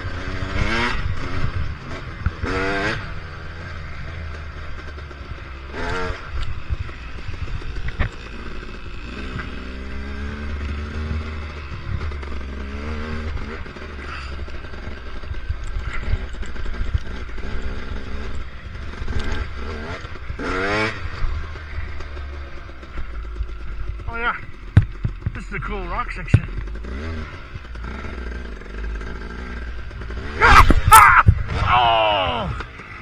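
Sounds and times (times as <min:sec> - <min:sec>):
motorcycle engine revving: 0:00.0 - 0:33.0
knocks and clatter: 0:22.8 - 0:25.4.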